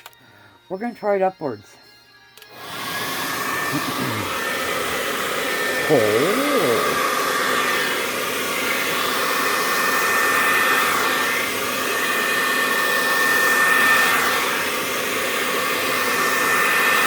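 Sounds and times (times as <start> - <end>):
hair dryer blowing: 2.4 - 17.0.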